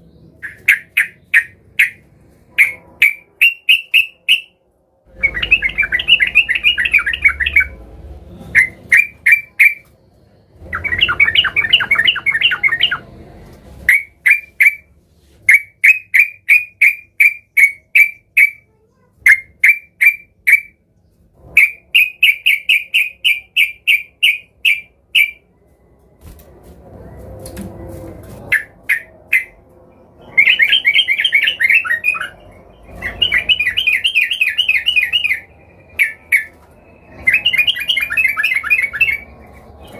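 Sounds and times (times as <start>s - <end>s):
bulbul singing: 0.0s - 2.0s, 2.6s - 7.8s, 8.5s - 9.9s, 10.6s - 13.1s, 15.5s - 18.6s, 21.6s - 25.4s, 30.2s - 39.9s.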